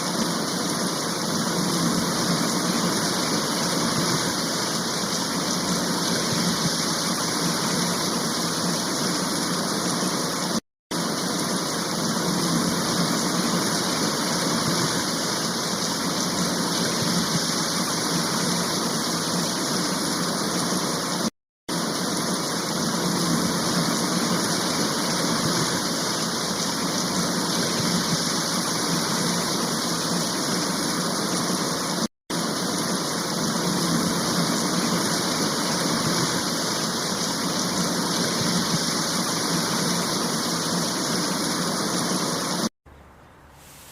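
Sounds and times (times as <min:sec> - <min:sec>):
rushing floodwater roar: 0:00.0 - 0:42.7.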